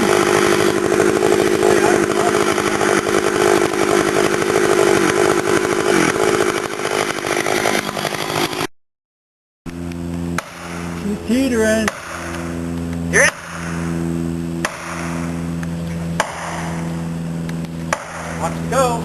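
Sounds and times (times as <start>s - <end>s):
chainsaw running at high speed: 0.0s - 8.7s, 9.7s - 19.0s.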